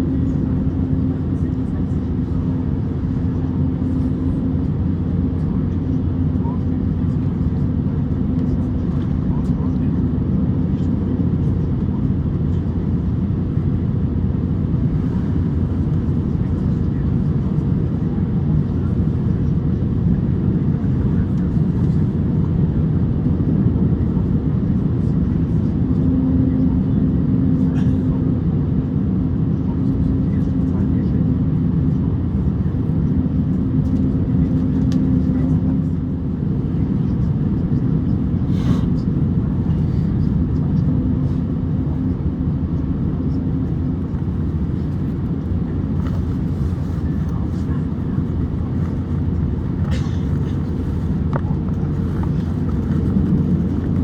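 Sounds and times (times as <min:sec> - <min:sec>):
airplane cabin engine rumble: 0:00.0 - 0:54.0.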